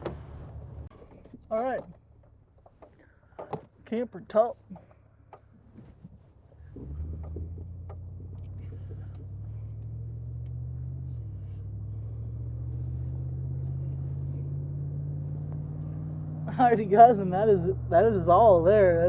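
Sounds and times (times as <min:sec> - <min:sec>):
truck engine humming: 0:00.0 - 0:05.8, 0:06.4 - 0:19.0.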